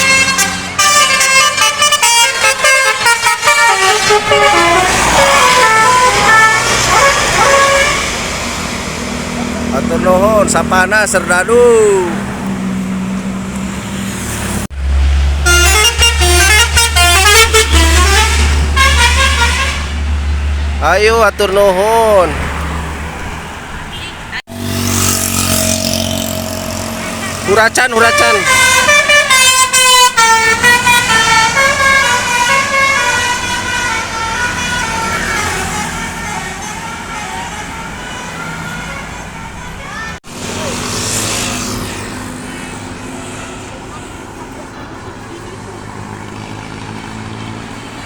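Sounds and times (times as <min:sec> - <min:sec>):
musical air horn tune: 0:00.0 - 0:08.5, 0:15.4 - 0:20.0, 0:25.5 - 0:39.8
bus engine humming: 0:00.0 - 0:48.0.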